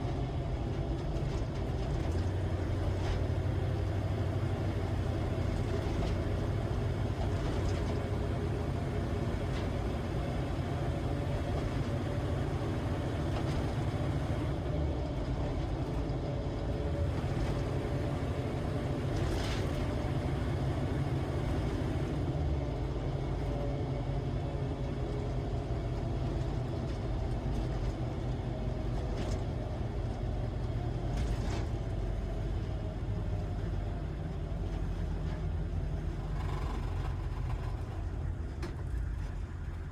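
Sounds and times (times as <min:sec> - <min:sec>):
diesel engine running while driving: 0:00.0 - 0:39.9
faint whine: 0:33.6 - 0:39.9.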